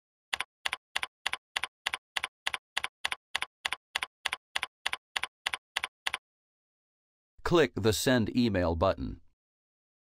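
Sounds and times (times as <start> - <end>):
computer keyboard typing: 0.3 - 6.2.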